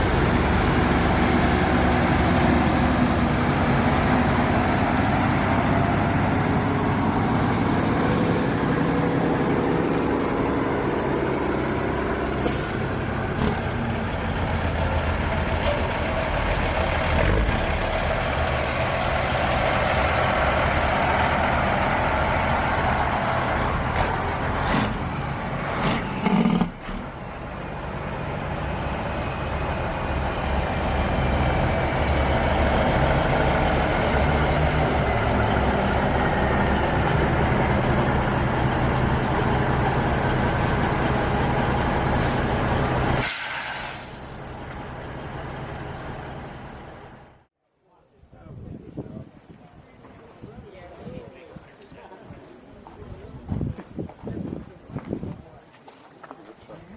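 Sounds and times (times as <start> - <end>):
truck engine running: 0.0 - 43.3, 43.9 - 47.5
compressed air hisses: 43.2 - 44.4.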